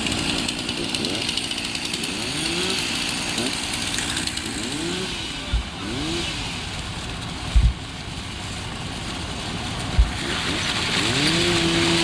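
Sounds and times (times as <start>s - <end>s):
engine revving: 0.0s - 7.8s, 9.9s - 12.0s
low thuds: 7.5s - 7.8s, 9.8s - 10.2s.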